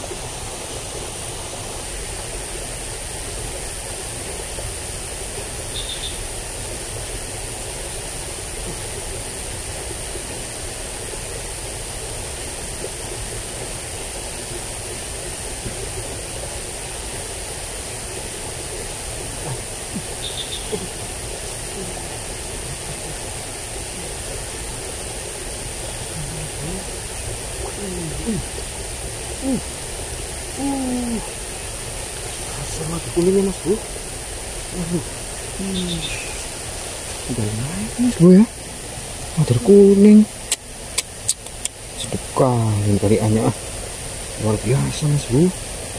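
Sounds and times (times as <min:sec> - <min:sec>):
ditch water rushing: 0:00.0 - 0:45.9
high-pitched hum: 0:19.1 - 0:36.6.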